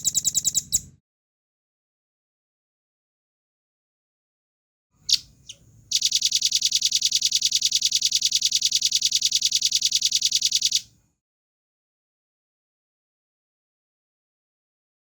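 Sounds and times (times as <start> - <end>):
bird singing high trill: 5.0 - 10.8.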